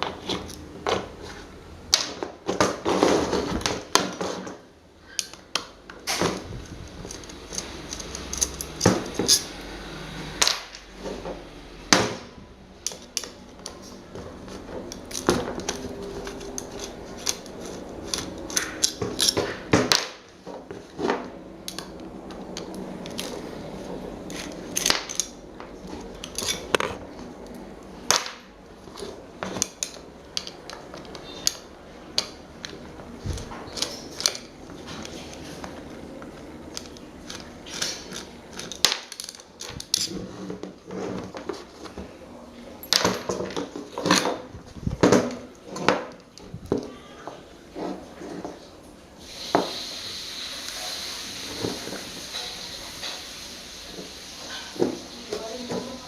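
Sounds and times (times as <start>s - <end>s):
steady background noise: 0.0s - 56.0s
metal parts clinking and knocking: 7.0s - 9.5s, 36.7s - 40.2s.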